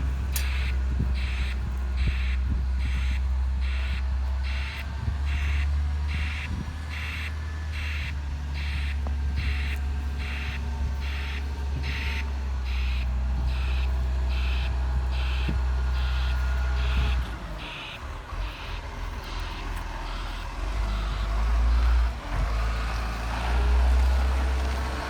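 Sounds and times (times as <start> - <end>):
truck engine running: 0.0 - 25.0
truck reversing alarm beeping: 0.0 - 25.0.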